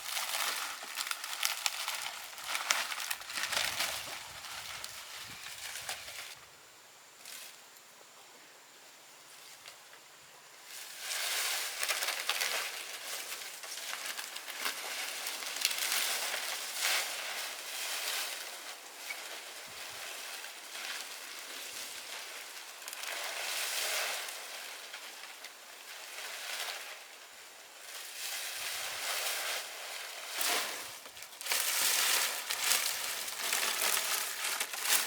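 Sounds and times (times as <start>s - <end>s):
rustling crunching noise: 0.0s - 6.4s, 10.8s - 35.0s.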